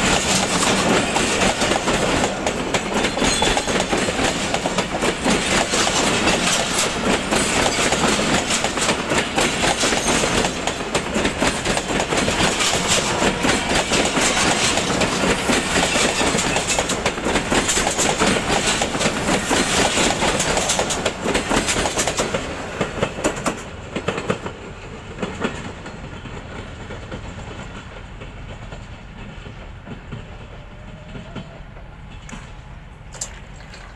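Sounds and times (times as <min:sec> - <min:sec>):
wheels clattering over rail joints: 0:00.0 - 0:31.5
receding train rumble: 0:00.0 - 0:33.9.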